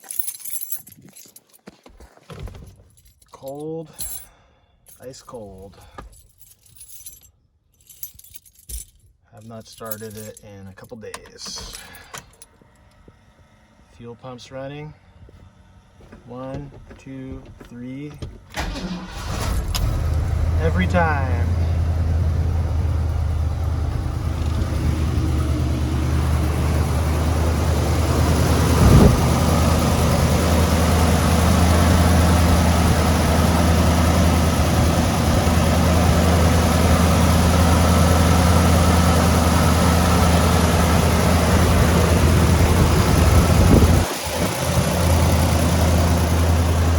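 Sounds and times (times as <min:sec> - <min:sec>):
vee eight engine idling: 0:11.0 - 0:46.9.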